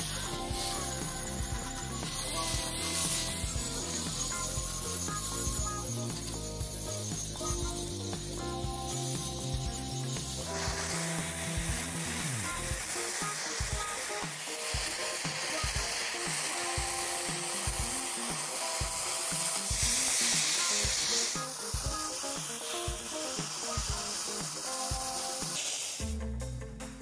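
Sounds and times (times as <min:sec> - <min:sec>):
gas torch hissing: 0:00.0 - 0:26.1
background music with beat: 0:00.0 - 0:27.0.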